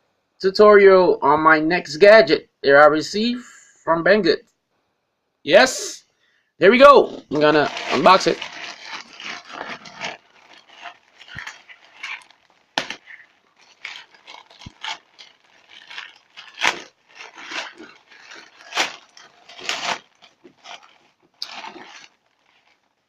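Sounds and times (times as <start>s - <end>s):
packaging rustling and crinkling: 6.8s - 23.0s.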